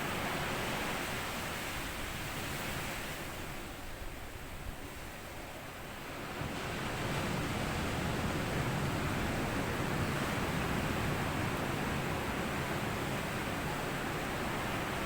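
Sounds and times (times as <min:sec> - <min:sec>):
waves washing onto sandy beach: 0:05.7 - 0:15.0.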